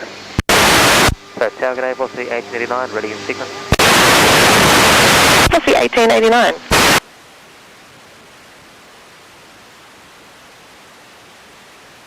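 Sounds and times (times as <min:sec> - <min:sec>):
radio static hiss: 0:00.0 - 0:07.1.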